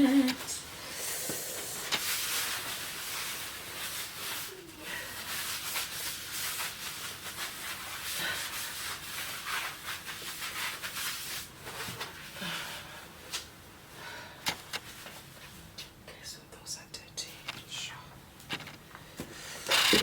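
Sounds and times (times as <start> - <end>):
rubbing and scrubbing: 1.2 - 12.4.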